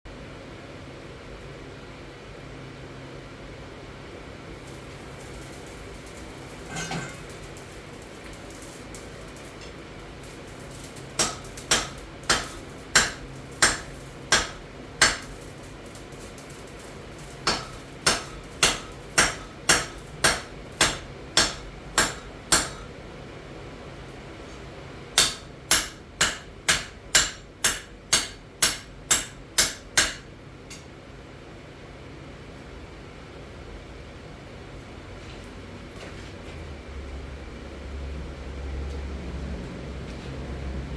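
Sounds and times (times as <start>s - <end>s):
hammer striking metal on anvil: 11.2s - 15.4s, 17.4s - 22.9s, 25.2s - 30.9s.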